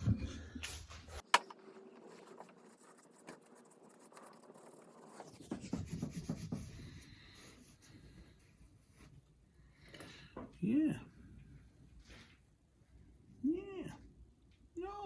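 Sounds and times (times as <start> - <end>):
faint scratching and rubbing: 0.0 - 9.4.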